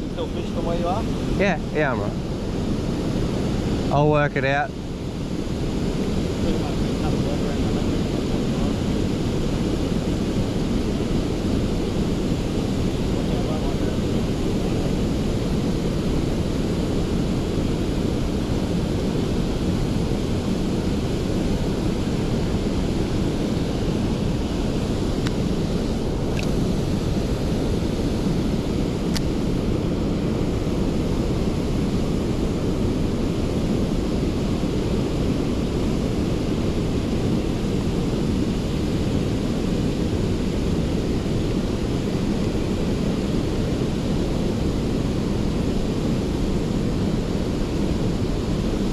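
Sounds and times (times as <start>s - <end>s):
low rumbling noise: 0.0s - 48.9s.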